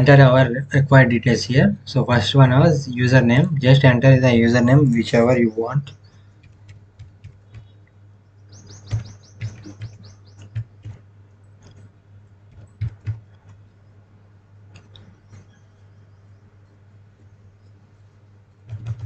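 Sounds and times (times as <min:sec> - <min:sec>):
steady low hum: 0:00.0 - 0:19.0
bird chirping: 0:07.5 - 0:10.8, 0:14.9 - 0:16.8.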